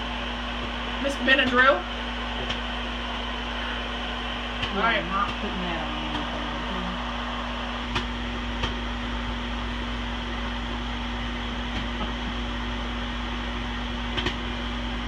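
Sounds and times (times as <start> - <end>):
microwave oven humming: 0.0 - 15.0
popcorn popping: 11.5 - 12.5.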